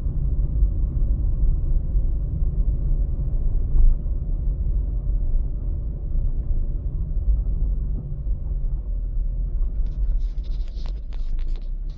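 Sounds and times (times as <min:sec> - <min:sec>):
car driving rumble inside cabin: 0:00.0 - 0:11.9
clicks and rustles of handling: 0:09.6 - 0:11.9.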